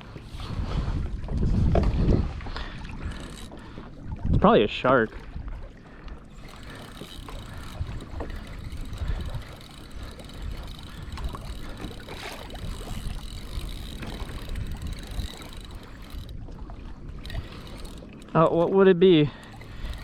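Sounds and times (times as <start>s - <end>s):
wind on microphone: 0.0s - 5.7s, 6.4s - 18.0s
water lapping against kayak hull: 0.0s - 20.0s
small knocks and ticks: 6.3s - 16.3s.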